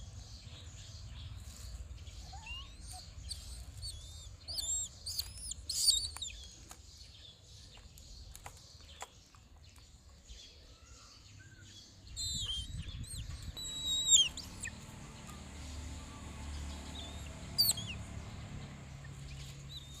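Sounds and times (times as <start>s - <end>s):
bird chirping and whistling: 2.3s - 6.4s, 12.1s - 14.8s, 16.9s - 18.0s.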